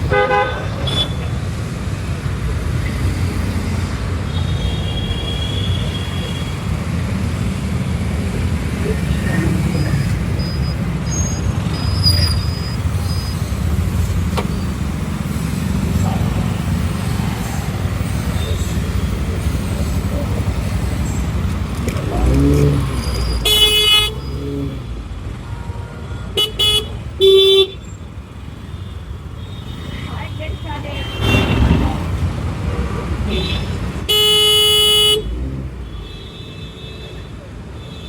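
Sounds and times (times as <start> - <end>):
vehicle horns honking: 0.0 - 1.3, 4.3 - 6.8, 22.0 - 27.9, 28.5 - 31.8, 33.2 - 38.0
road rumble: 0.0 - 38.0
wind: 0.0 - 38.0.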